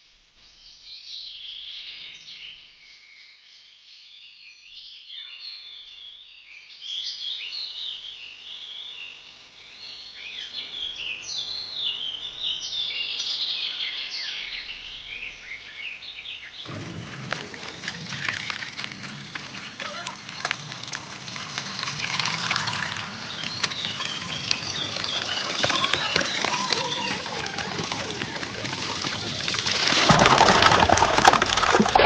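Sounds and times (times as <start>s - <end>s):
songbirds chirping and singing: 9.7s - 32.0s
loud crackling rustling noise: 16.6s - 32.0s.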